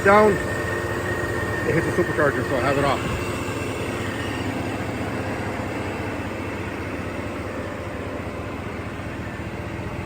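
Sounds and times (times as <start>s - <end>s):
supercharged engine idling: 0.0s - 10.0s.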